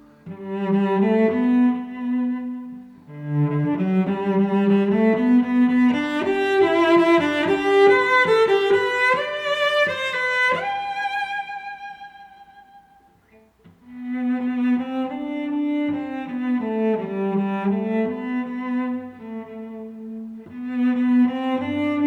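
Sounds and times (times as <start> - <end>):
bowed string instrument melody: 0.0 - 22.0.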